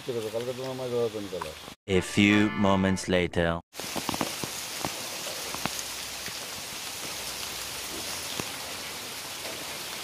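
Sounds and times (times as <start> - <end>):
raindrops ticking close by: 0.0 - 1.8, 3.8 - 10.0
heavy rain hissing: 3.8 - 10.0.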